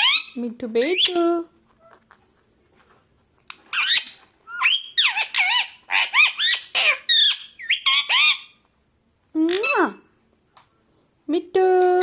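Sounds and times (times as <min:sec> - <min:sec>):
parrot squawking: 0:00.0 - 0:01.2, 0:03.6 - 0:08.6, 0:09.5 - 0:10.0.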